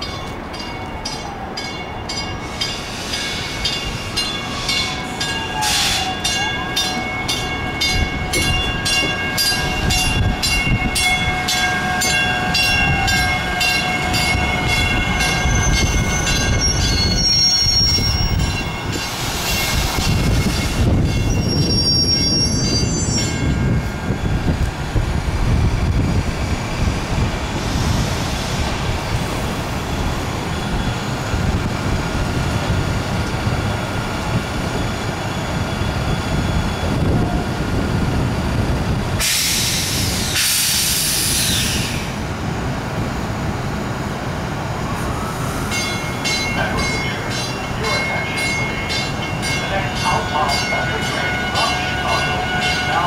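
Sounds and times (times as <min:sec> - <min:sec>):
train wheels rumbling on rails: 0:00.0 - 0:53.0
high squealing tones: 0:12.8 - 0:18.7, 0:19.7 - 0:24.5.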